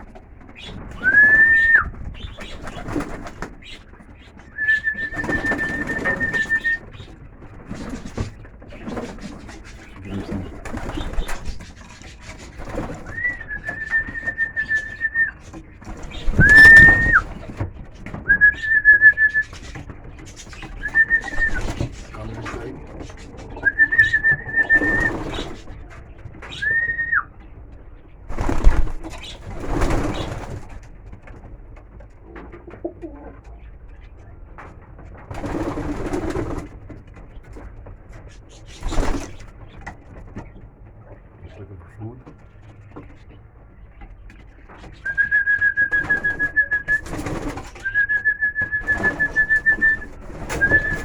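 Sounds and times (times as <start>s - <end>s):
pigeons cooing: 0.0s - 30.9s, 32.2s - 34.7s, 35.3s - 51.0s
high whistles: 4.5s - 6.8s, 45.1s - 51.0s.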